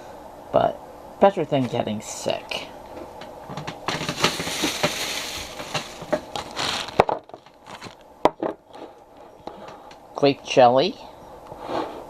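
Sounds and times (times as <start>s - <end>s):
food containers crinkling: 3.0s - 9.7s
containers knocking down: 3.5s - 7.5s.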